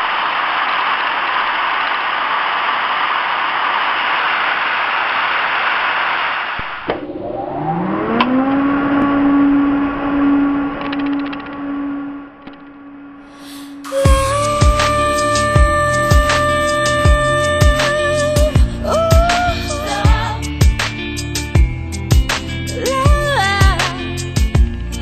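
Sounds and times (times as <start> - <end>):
rising tone settling into hum: 6.3 - 15.9.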